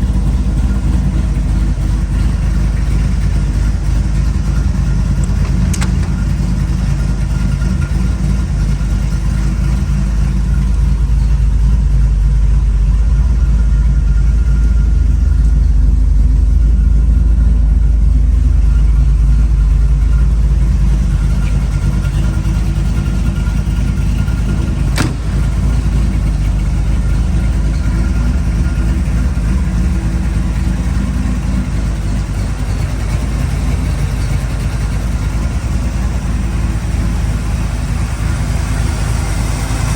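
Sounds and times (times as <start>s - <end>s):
car engine rumbling: 0.0s - 39.9s.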